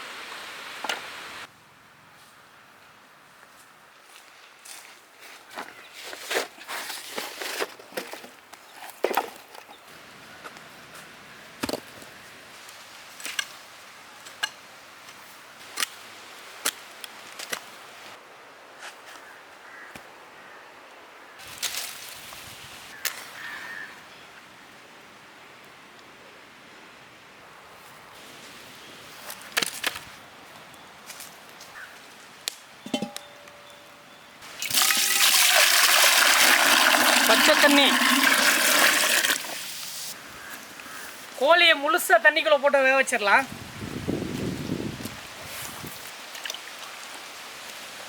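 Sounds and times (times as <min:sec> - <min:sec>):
metal cookware knocking: 0:32.8 - 0:33.7.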